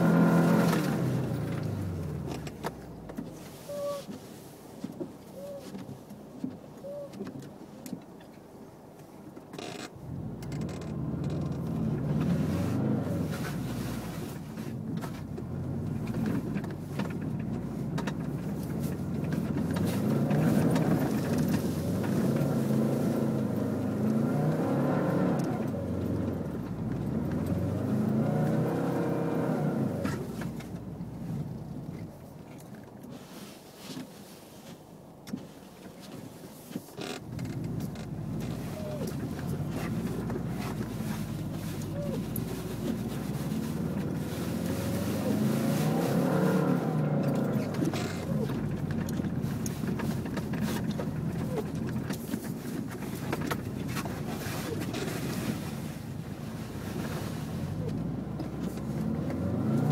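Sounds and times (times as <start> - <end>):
car engine revving: 0.0 - 2.6, 10.1 - 14.4, 15.2 - 31.8, 37.5 - 52.1, 56.6 - 59.9.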